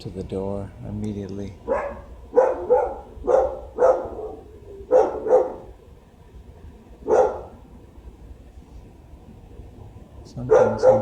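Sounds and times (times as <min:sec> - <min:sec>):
dog barking: 0:01.6 - 0:05.8, 0:07.0 - 0:07.7, 0:10.4 - 0:11.0.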